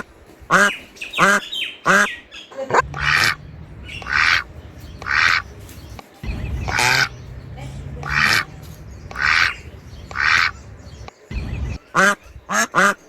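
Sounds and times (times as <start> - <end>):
low rumble: 2.8 - 12.5.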